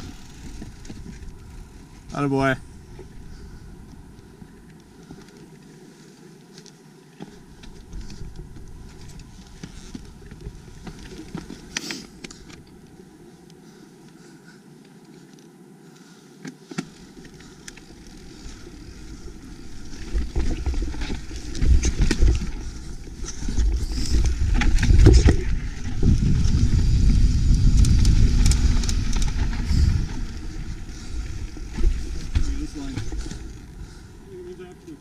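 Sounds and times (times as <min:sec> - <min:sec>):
low rumble with rattling: 0:18.5 - 0:34.5
wind buffeting microphone: 0:18.9 - 0:34.3.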